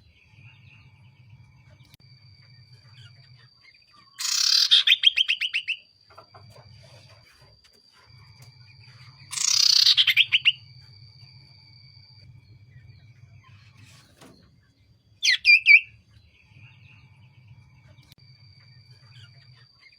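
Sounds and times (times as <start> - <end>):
bird calling with rattle: 3.9 - 7.5, 9.0 - 10.6.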